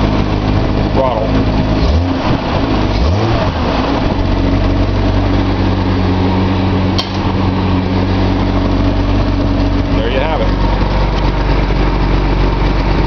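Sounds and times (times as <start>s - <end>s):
car engine idling: 0.0s - 13.0s
sharp click: 7.0s - 7.3s.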